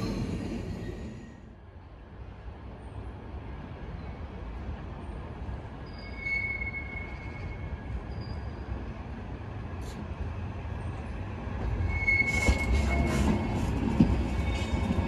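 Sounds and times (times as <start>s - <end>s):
train rumbling: 0.0s - 15.0s
high wheel squeal: 5.8s - 8.8s, 11.8s - 13.6s.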